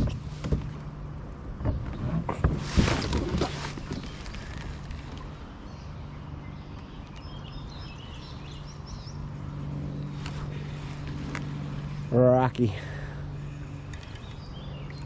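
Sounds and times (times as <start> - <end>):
steady low hum: 0.0 - 15.0
bird chirps: 5.6 - 9.3, 13.3 - 15.0.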